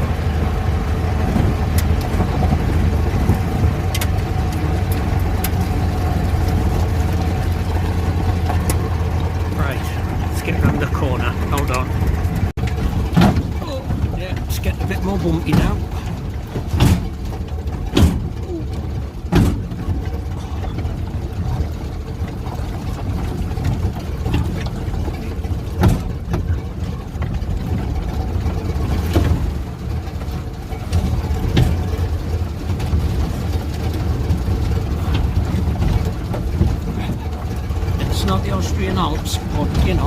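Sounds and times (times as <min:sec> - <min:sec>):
engine running: 0:00.0 - 0:40.0
sharp knocks over bumps: 0:10.4 - 0:38.0.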